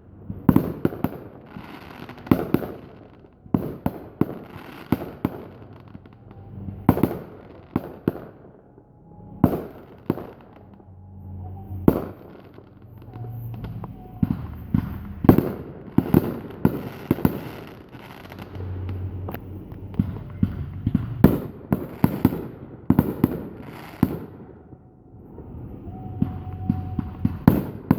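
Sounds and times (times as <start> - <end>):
fireworks bursting in sharp bangs: 0.0 - 10.8, 11.7 - 27.9.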